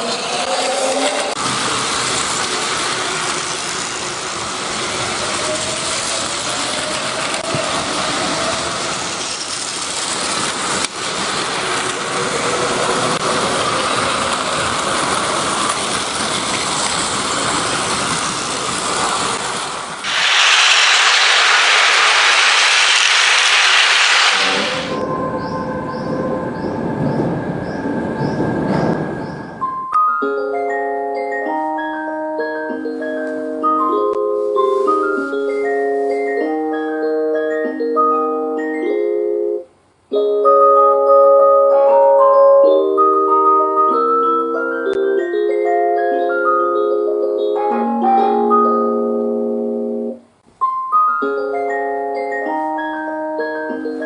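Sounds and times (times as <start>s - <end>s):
electric train motor whine: 0.0s - 29.8s
loud steady hiss: 1.4s - 25.0s.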